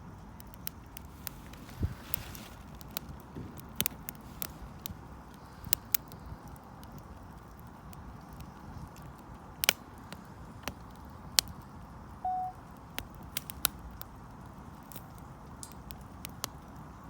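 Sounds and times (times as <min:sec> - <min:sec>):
campfire crackling and popping: 0:00.0 - 0:17.0
short steady tone: 0:12.2 - 0:12.6.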